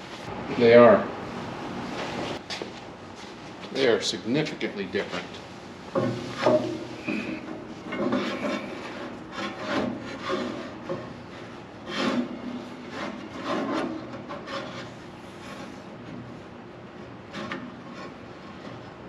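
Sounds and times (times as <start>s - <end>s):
rubber belt rubbing and scraping: 6.1s - 16.2s.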